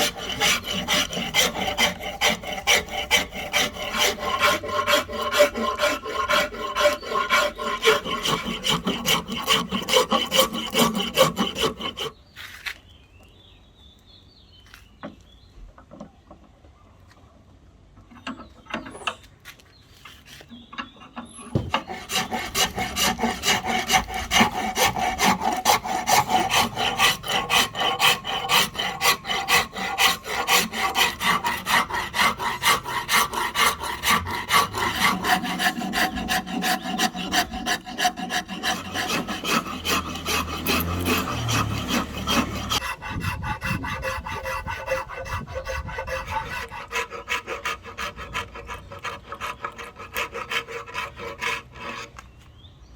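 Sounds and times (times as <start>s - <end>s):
wood rasp scraping wood: 0.0s - 12.7s, 20.0s - 52.4s.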